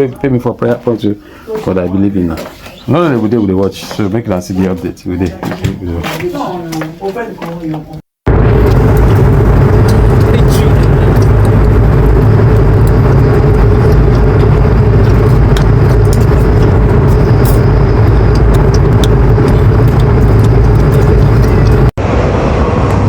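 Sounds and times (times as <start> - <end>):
vehicle drone: 8.3 - 23.0.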